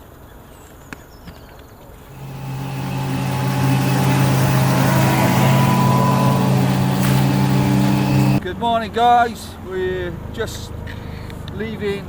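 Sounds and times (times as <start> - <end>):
outboard motor running: 2.1 - 8.4.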